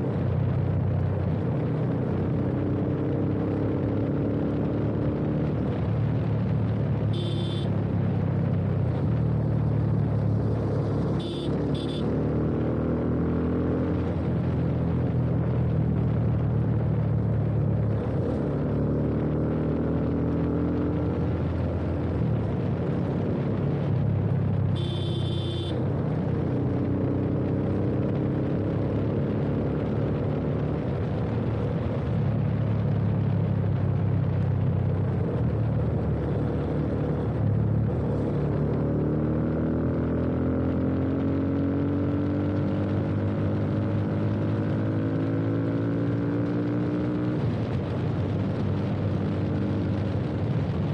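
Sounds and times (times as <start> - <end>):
motorcycle engine revving: 7.1 - 15.4, 17.8 - 30.9, 35.0 - 50.9.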